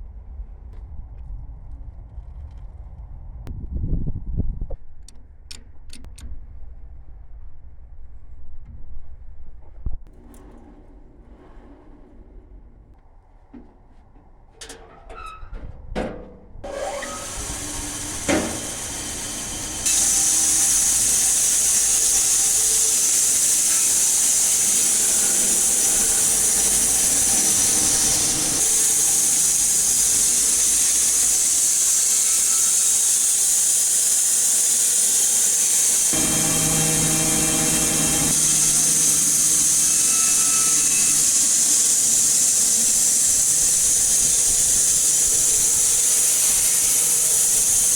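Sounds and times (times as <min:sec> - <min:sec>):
band saw running: 0:16.6 - 0:47.9.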